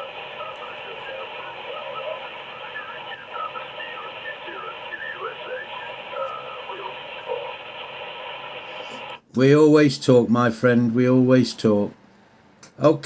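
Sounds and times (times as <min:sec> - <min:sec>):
faint voice over radio: 0:00.0 - 0:09.2
radio static hiss: 0:00.0 - 0:09.3.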